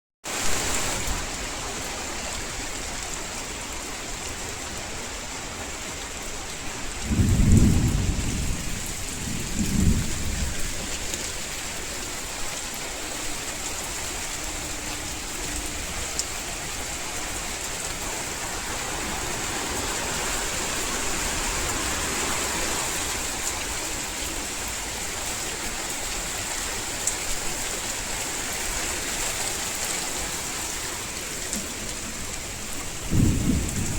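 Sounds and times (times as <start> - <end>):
heavy rain falling: 0.2 - 33.9
low rumbles of thunder: 7.0 - 11.6, 32.8 - 33.9.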